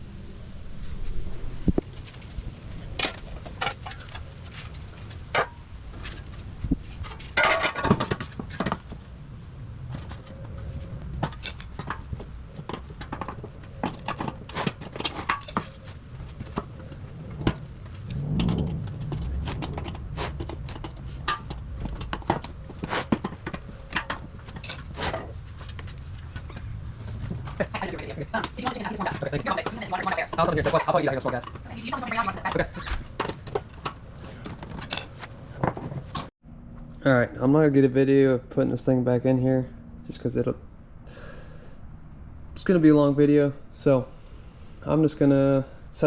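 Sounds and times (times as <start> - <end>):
rattling scrape: 0.8 - 9.1, 9.8 - 36.3
metal plate clicks and scrapes: 9.9 - 26.7.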